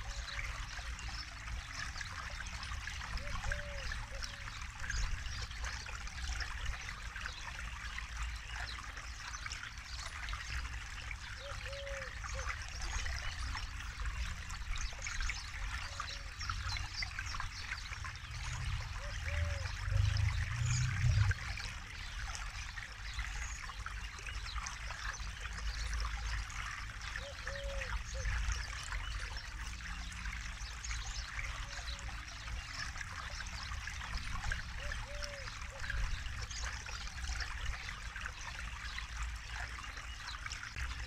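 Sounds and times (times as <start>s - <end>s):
river water trickling: 0.0s - 41.0s
deep low rumble: 19.9s - 21.5s.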